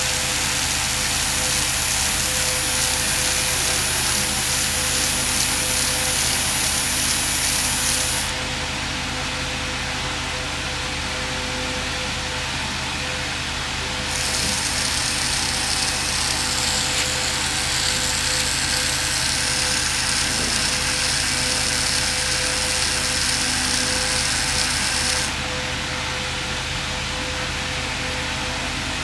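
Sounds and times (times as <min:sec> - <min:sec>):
power tool whining: 0:00.0 - 0:08.4, 0:13.9 - 0:25.7.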